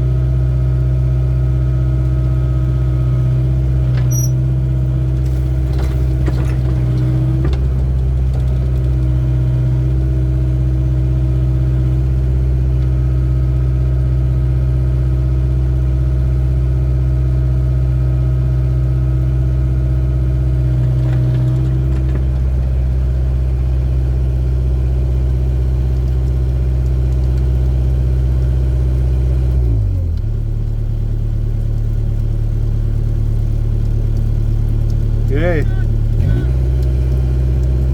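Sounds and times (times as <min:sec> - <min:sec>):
excavator diesel engine running: 0:00.0 - 0:15.0, 0:18.1 - 0:27.4, 0:33.3 - 0:37.9.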